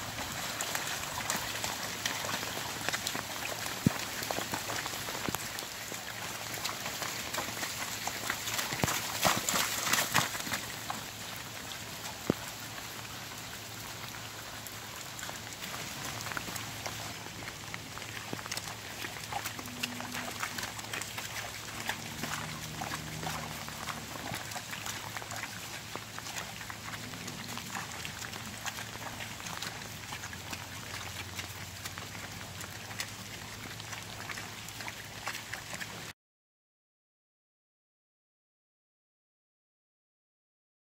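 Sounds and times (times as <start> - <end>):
heavy rain falling: 0.0 - 18.5
raindrops ticking on surfaces: 0.0 - 36.1.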